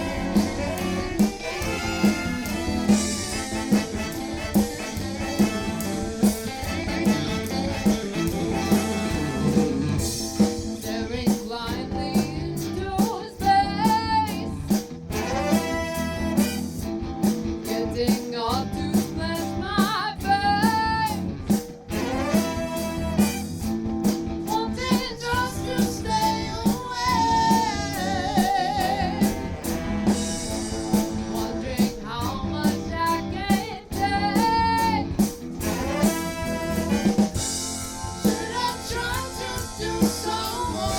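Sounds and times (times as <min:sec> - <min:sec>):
live band playing: 0:00.0 - 0:40.9.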